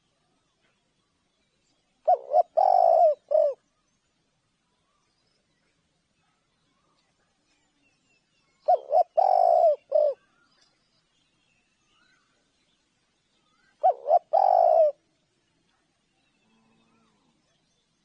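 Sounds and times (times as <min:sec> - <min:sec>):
dove cooing: 0:02.0 - 0:03.6, 0:08.6 - 0:10.2, 0:13.8 - 0:15.0.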